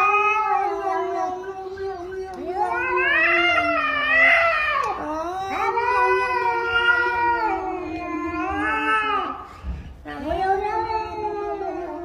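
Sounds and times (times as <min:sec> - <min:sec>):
animal howling: 0:00.0 - 0:09.3.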